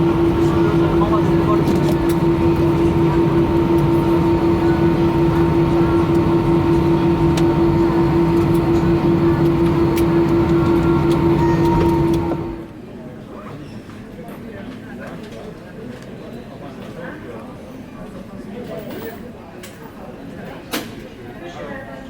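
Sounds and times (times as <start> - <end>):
aircraft cabin hum: 0.0 - 12.7.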